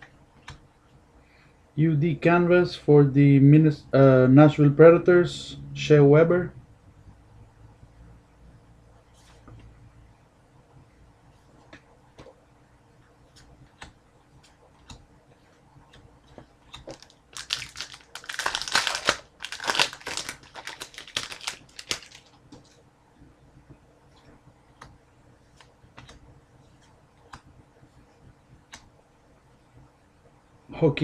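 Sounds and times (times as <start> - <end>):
foil wrapper tearing and crinkling: 16.9 - 22.3.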